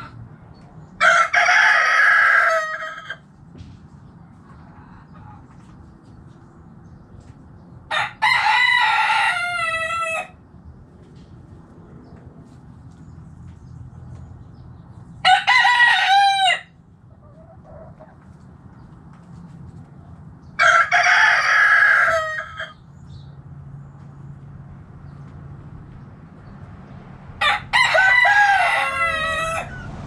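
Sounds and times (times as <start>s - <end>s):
rooster crowing: 1.0s - 3.2s, 7.9s - 10.4s, 15.2s - 16.8s, 20.6s - 22.8s, 27.4s - 30.0s.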